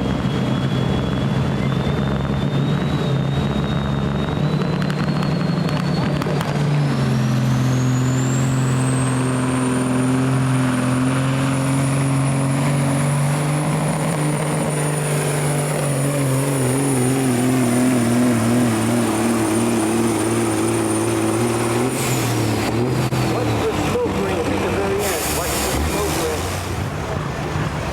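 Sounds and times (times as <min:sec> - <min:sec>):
high whistle: 0:00.0 - 0:06.3
diesel engine running under load: 0:00.0 - 0:27.9.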